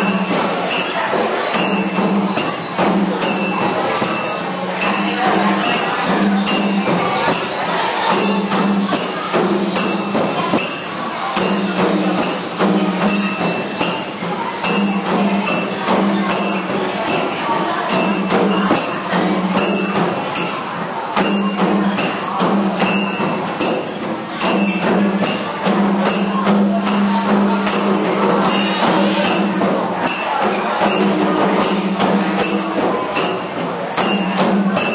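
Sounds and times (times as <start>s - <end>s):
high jingling percussion: 0.0s - 34.9s.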